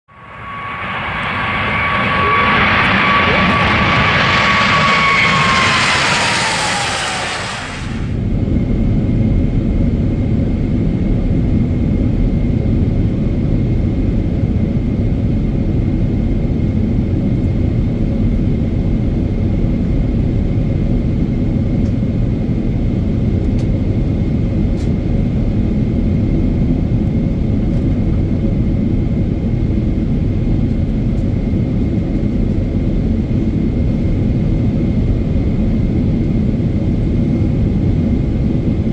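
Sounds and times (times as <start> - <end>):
jet engines roaring in cabin: 0.1 - 38.9
hiss with falling whine: 0.2 - 8.2.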